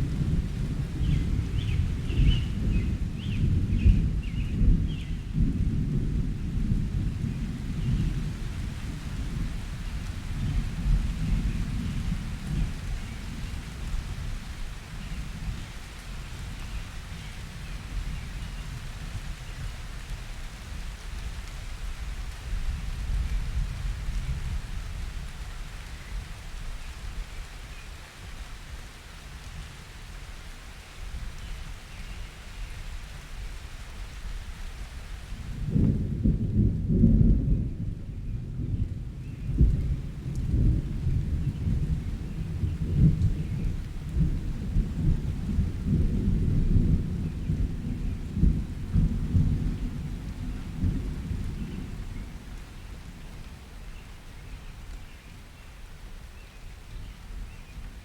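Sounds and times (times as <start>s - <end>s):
rolling thunder: 0.0s - 16.4s, 35.5s - 53.4s
steady rain: 0.0s - 58.0s.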